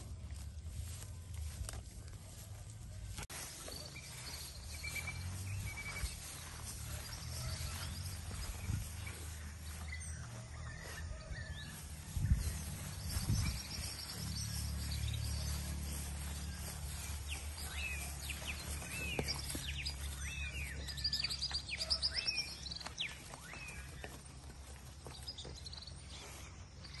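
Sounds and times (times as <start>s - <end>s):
small birds chirping: 0.8s - 27.0s.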